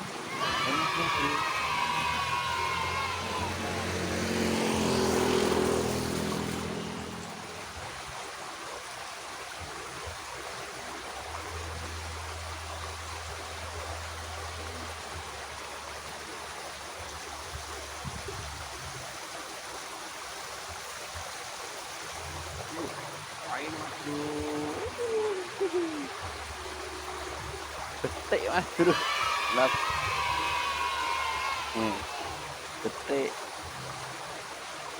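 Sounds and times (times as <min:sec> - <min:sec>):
water rushing in ditch: 0:00.0 - 0:34.9.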